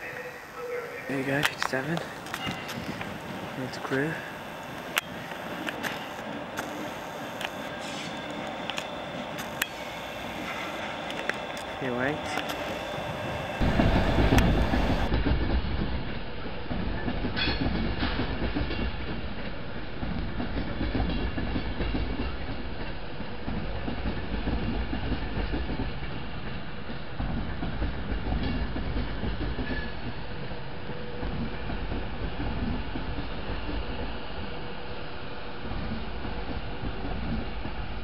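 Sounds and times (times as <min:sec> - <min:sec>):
diesel locomotive rumble: 0:00.0 - 0:15.9
train wheels rumbling on rails: 0:00.0 - 0:38.0.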